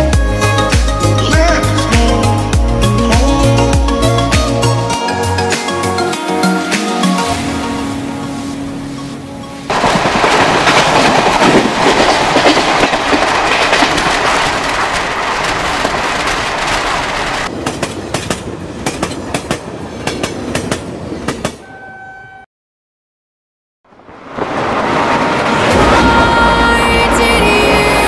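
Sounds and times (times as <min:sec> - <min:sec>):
wheels click-clacking over rail joints: 0:09.7 - 0:21.6
brief steady tone: 0:21.6 - 0:22.5
train rushing past: 0:24.2 - 0:28.0.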